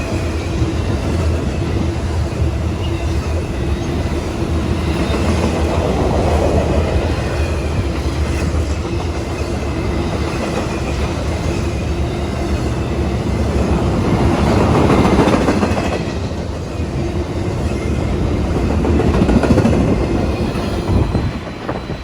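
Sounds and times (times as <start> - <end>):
train wheels clattering on rails: 0.0 - 22.0.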